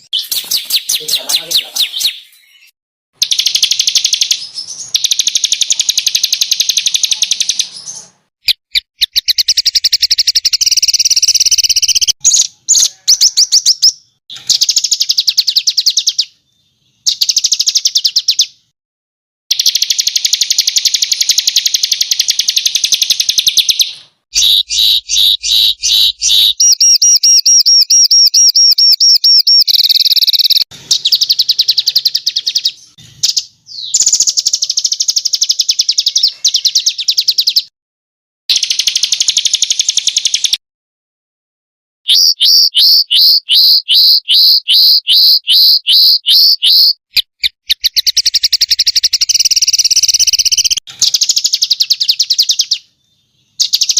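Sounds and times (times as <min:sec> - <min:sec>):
songbirds trilling harshly: 0:00.0 - 0:18.5, 0:19.5 - 0:37.7, 0:42.1 - 0:53.9.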